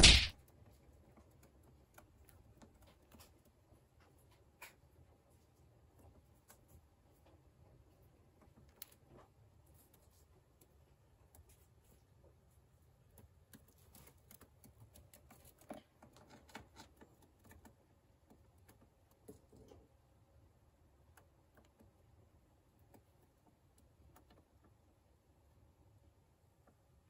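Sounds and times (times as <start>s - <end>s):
faint light clicks and taps: 13.0s - 20.0s, 21.0s - 24.8s.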